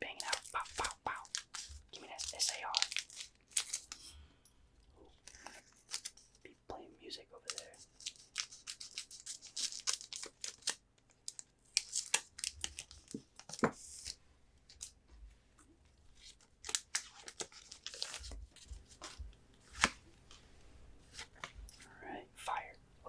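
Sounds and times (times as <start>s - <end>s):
foil wrappers tearing and crinkling: 0.1s - 4.1s, 5.3s - 6.3s, 7.9s - 13.6s, 16.6s - 18.4s.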